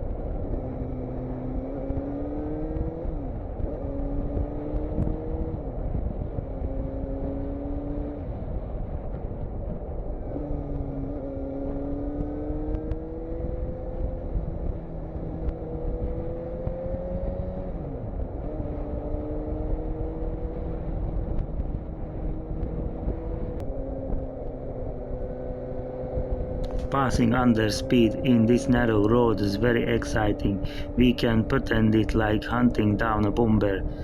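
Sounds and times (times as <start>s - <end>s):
wind rumble on microphone: 2.8s - 7.4s, 8.0s - 11.2s, 20.2s - 25.3s, 26.2s - 27.0s.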